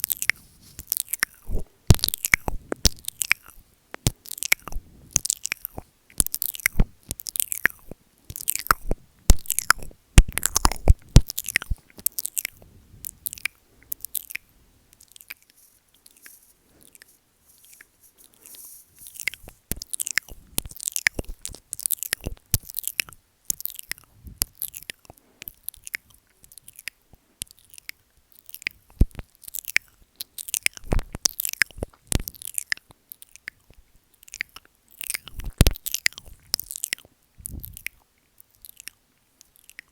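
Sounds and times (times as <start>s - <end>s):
wet mouth sounds: 0.0s - 39.9s.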